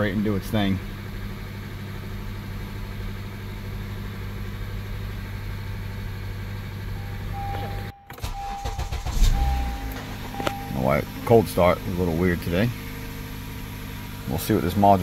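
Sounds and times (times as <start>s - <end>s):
car engine idling: 0.0s - 15.0s
dashboard warning chime: 6.9s - 11.4s
engine cranking: 7.3s - 11.5s.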